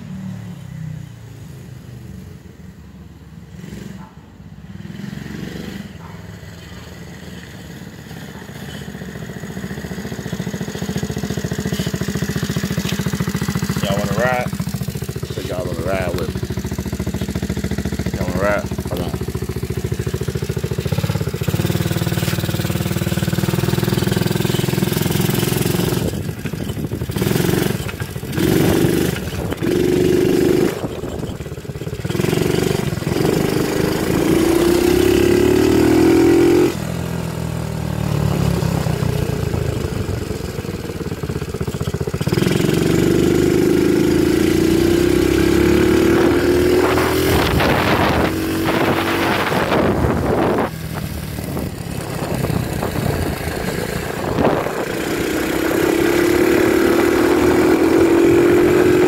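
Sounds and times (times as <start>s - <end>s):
dirt bike engine revving: 7.6s - 37.0s, 40.9s - 59.0s.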